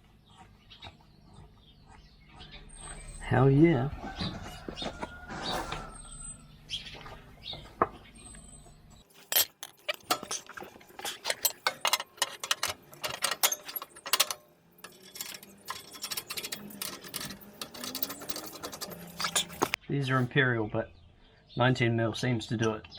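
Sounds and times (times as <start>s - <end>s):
metal hand tools clinking: 9.2s - 19.8s.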